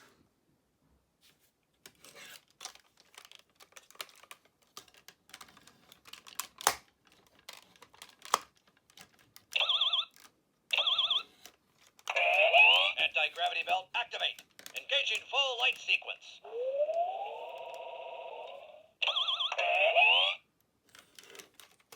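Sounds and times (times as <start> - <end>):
plastic toy clicks and knocks: 2.6 - 12.2
warbling electronic toy beeps: 9.6 - 10.1, 10.8 - 11.2, 16.4 - 20.4.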